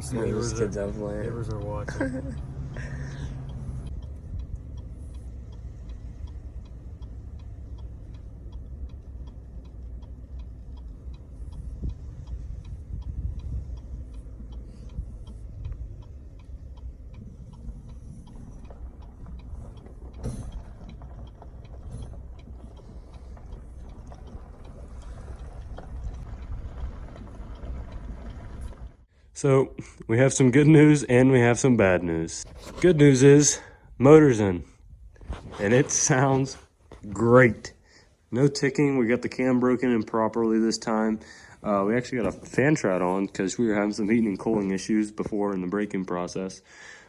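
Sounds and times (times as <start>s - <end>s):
faint regular ticking: 0.0s - 47.0s
road and engine rumble: 0.0s - 47.0s.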